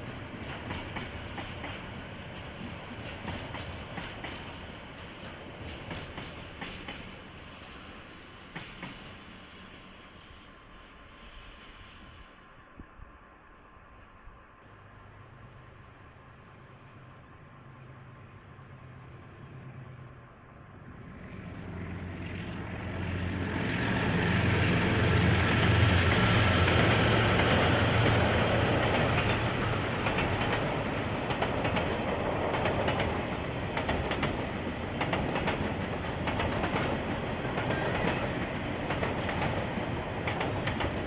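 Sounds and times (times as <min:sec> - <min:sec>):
locomotive engine hum: 0:14.6 - 0:41.0.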